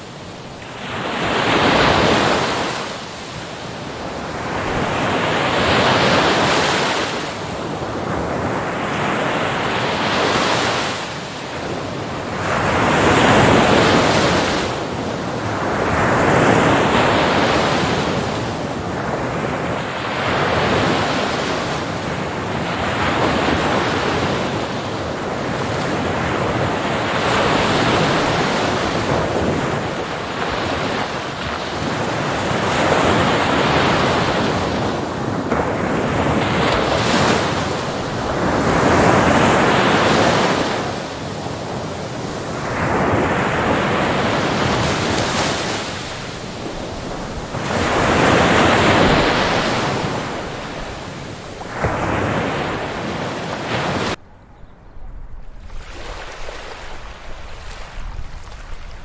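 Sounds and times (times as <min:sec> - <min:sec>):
ocean waves breaking: 0:00.0 - 0:54.3, 0:55.4 - 0:59.0
wind noise on microphone: 0:00.0 - 0:59.0.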